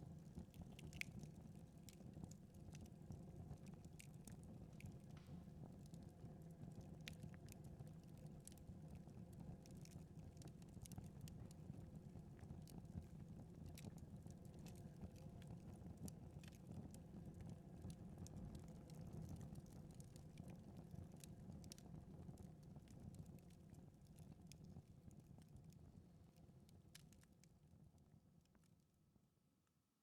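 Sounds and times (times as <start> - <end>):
wood fire crackling: 0.1 - 23.6.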